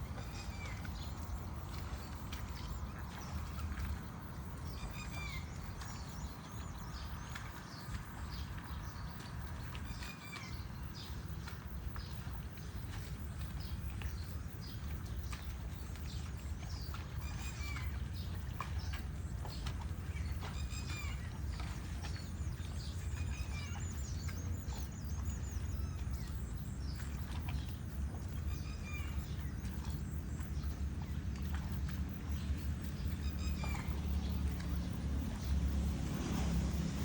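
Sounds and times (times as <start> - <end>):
birds chirping: 13.2 - 37.0.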